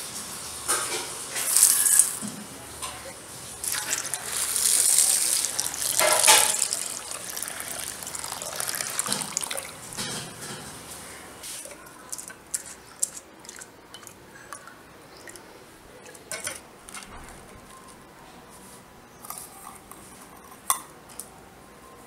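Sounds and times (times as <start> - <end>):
water dripping: 3.6 - 10.1, 12.1 - 16.2
water splashing into bowl: 3.6 - 10.4.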